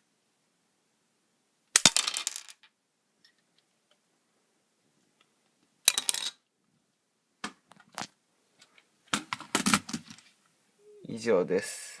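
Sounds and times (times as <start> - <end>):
plastic pieces clattering: 5.9 - 6.4.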